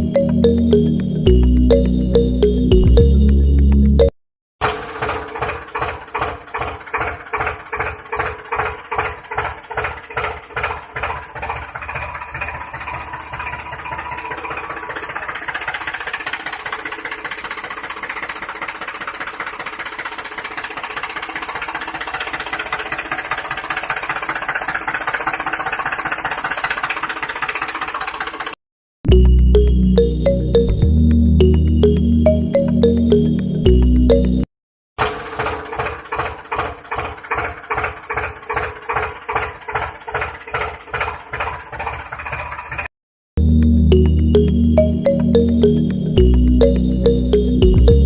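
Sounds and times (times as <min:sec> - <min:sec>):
model tractor motor pulsing: 0:04.6 - 0:28.6, 0:35.0 - 0:42.9.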